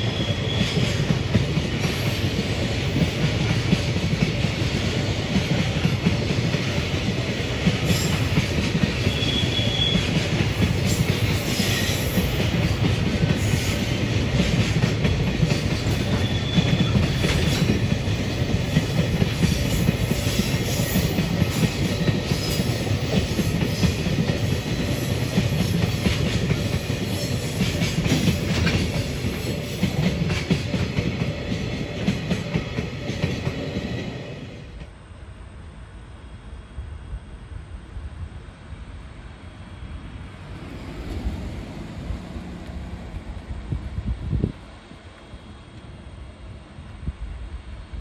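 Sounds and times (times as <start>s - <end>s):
train wheels rumbling past: 0.0s - 35.0s, 38.6s - 48.0s.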